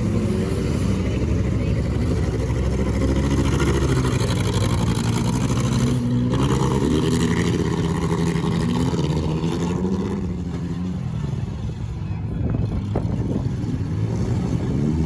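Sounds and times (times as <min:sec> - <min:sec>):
car engines running and revving: 0:00.0 - 0:15.0.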